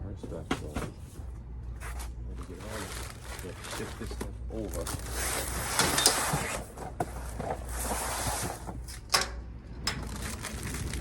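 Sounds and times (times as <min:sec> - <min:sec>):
items scraping: 0:01.8 - 0:09.1.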